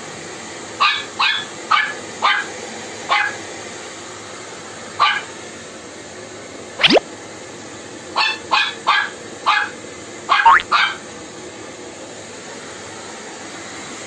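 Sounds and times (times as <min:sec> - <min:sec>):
small dog barking: 0:00.8 - 0:02.5, 0:05.0 - 0:05.3, 0:08.2 - 0:09.7, 0:10.3 - 0:11.0
quick rising sound: 0:06.8 - 0:07.0.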